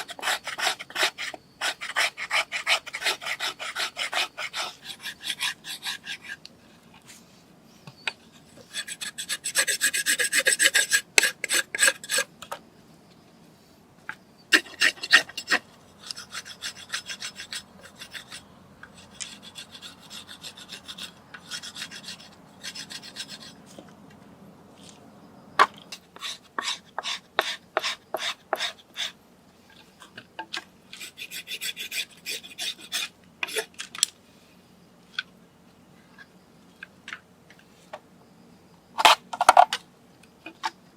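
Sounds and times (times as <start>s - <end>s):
hand tool rasping wood: 0.0s - 6.4s, 8.6s - 12.3s, 14.5s - 23.6s, 26.2s - 29.1s, 31.0s - 33.7s.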